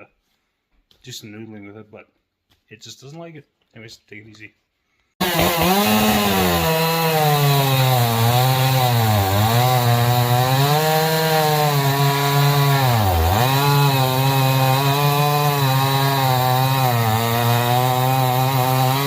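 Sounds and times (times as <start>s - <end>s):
chainsaw cutting log: 5.2s - 19.0s.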